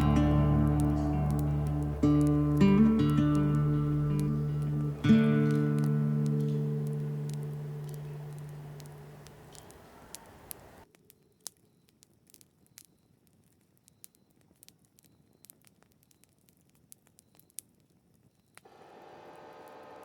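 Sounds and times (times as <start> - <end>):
acoustic guitar music: 0.0 - 9.7.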